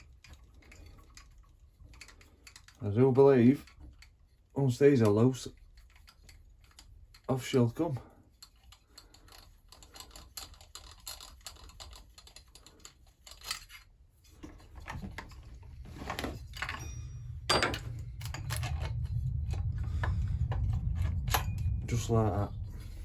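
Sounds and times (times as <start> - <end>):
clicks of tools and metal parts: 0.0 - 2.8, 8.2 - 19.2
low steady hum: 0.0 - 23.0.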